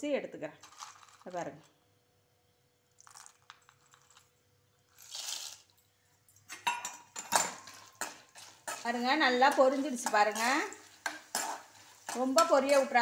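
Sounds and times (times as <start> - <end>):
dried berries rattling in steel cup: 0.6 - 1.6, 7.2 - 13.0
berries crackling in oil: 2.9 - 5.8, 7.5 - 13.0.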